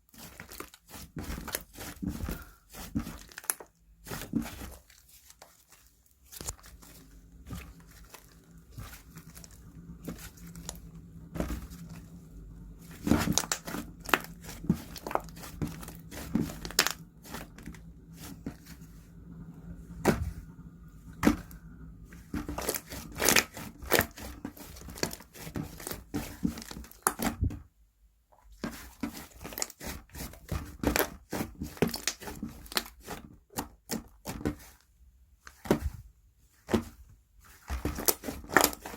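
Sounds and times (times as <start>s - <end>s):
faint steady hum: 0.0s - 33.8s
slime squished by hand: 0.1s - 12.1s, 12.9s - 18.8s, 22.2s - 27.5s, 28.5s - 34.8s, 36.6s - 38.9s.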